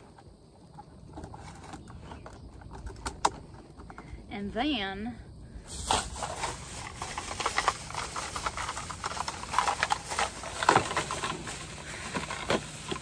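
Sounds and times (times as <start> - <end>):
gutter pieces clicking and knocking: 0.7 - 4.2.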